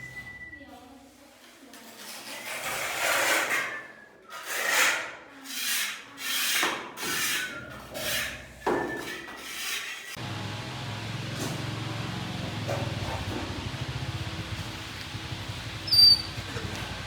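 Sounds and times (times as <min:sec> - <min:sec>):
rasping scraping strokes: 0:04.4 - 0:10.2.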